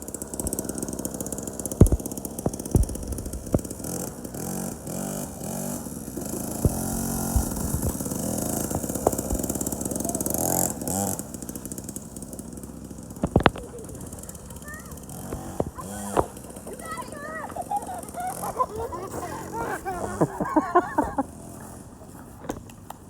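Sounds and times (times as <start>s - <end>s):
motorcycle engine revving: 0.0s - 22.9s
sharp clicks: 0.4s - 3.8s.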